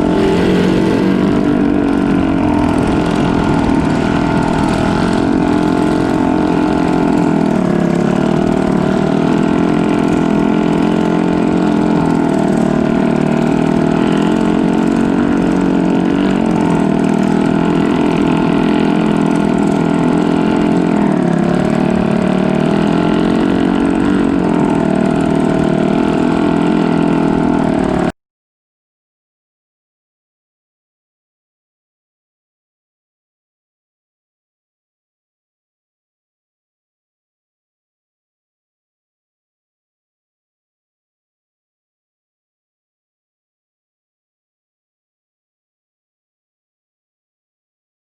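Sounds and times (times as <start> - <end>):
boat engine running: 0.0 - 28.1.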